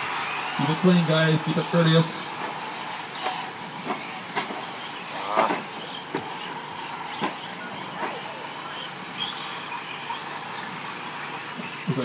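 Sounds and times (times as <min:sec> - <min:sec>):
toy truck motors whining: 0:00.0 - 0:12.0.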